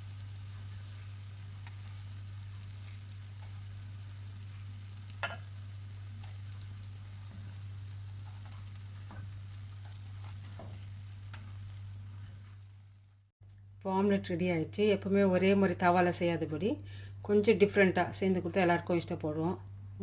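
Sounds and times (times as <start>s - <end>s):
eggs sizzling in oil: 0.0s - 13.3s
steady low hum: 0.0s - 20.0s.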